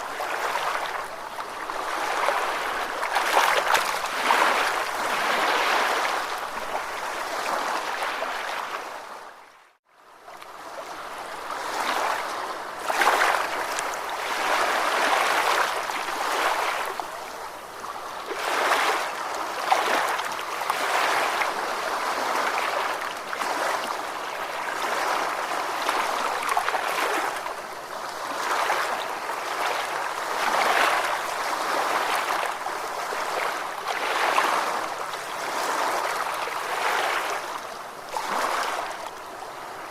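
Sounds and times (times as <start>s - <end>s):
ocean waves washing: 0.0s - 9.1s.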